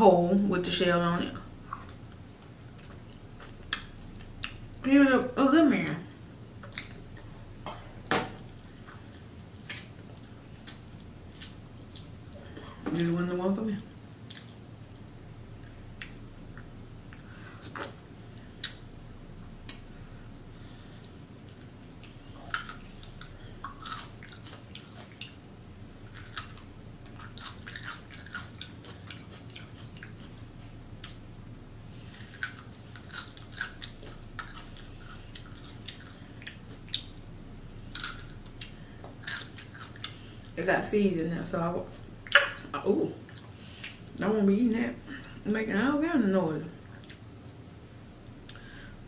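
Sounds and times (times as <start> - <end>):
wet chewing: 14.2 - 14.6, 21.0 - 25.4, 26.0 - 31.2, 32.0 - 40.4.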